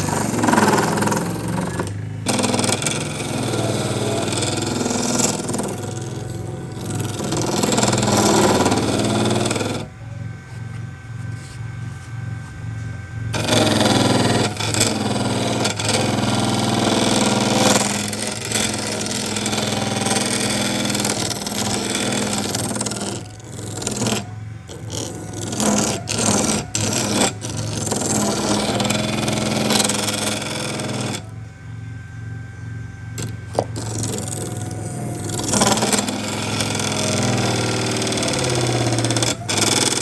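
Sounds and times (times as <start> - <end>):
rough scraping noise: 0.0 - 9.9, 10.5 - 31.3
power tool motor hum: 0.0 - 31.4, 33.2 - 40.0.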